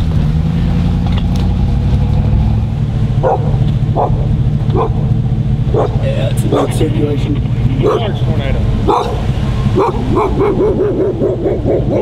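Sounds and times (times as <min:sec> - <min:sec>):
vehicle engine running: 0:00.0 - 0:12.0
wind rumble: 0:00.0 - 0:12.0
dog barking: 0:03.2 - 0:05.1, 0:05.7 - 0:06.8, 0:07.8 - 0:08.2, 0:08.8 - 0:12.0.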